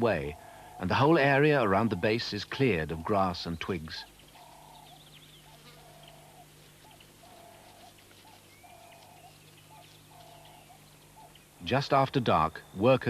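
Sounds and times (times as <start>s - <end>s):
quavering animal call: 0.0s - 2.8s, 4.2s - 11.8s.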